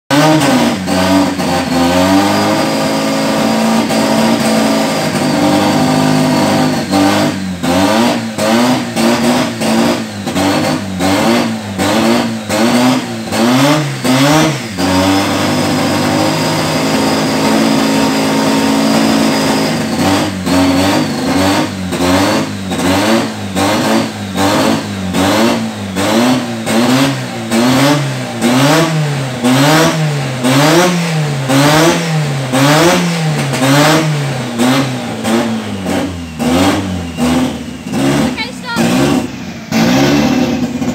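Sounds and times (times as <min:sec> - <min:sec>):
turbo engine revving: 0:00.0 - 0:40.9.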